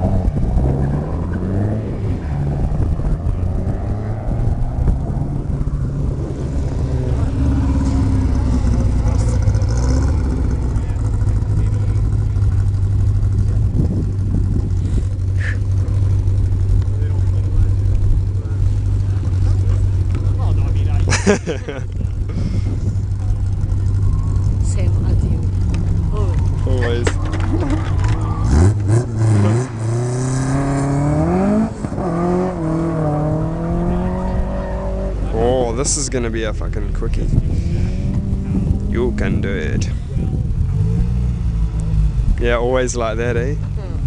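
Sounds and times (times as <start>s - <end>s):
wind rumble on microphone: 0.0s - 11.3s, 12.0s - 15.4s, 21.7s - 29.5s, 36.7s - 42.4s
distant race cars droning: 0.0s - 21.1s, 21.9s - 44.0s.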